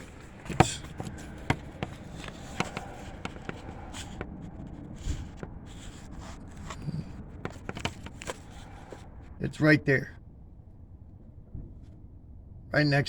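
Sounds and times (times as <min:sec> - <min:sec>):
phone handling clicks and scuffs: 0:00.0 - 0:09.3.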